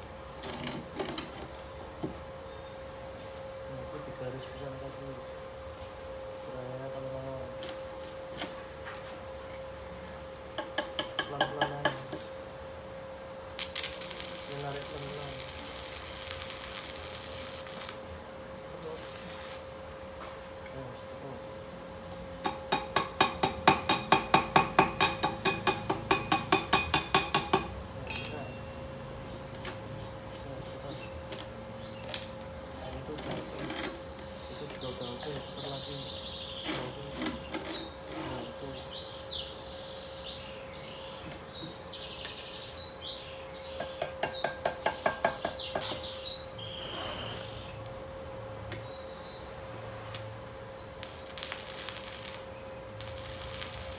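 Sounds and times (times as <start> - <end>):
small birds chirping: 20.2 - 28.8, 30.0 - 53.9
hammer knocking on steel: 22.4 - 28.6.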